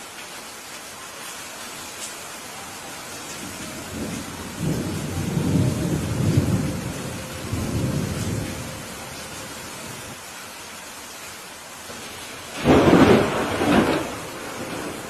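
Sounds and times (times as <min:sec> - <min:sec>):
rain hissing: 0:00.0 - 0:15.0
thunder rolling: 0:03.4 - 0:10.2, 0:12.0 - 0:15.0.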